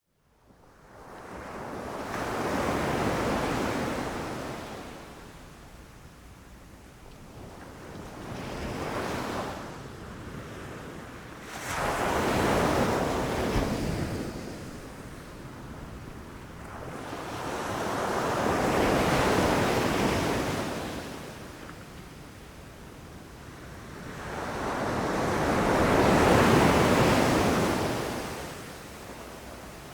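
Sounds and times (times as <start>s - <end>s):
low rumble of surf: 0.5s - 29.9s
ocean waves breaking on beach: 1.2s - 5.4s, 7.4s - 22.5s, 23.2s - 29.9s.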